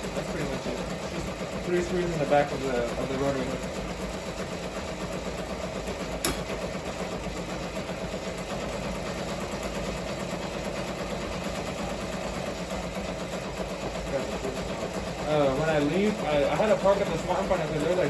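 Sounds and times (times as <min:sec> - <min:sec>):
embroidery machine running: 0:00.0 - 0:18.0
sharp click: 0:06.2 - 0:06.5.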